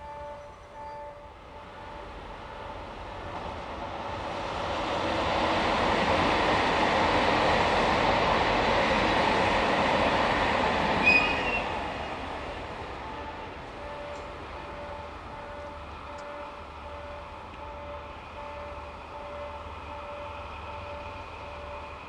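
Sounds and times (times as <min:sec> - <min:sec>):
train passing on tracks: 0:00.0 - 0:22.0
high wheel squeal: 0:11.0 - 0:11.8.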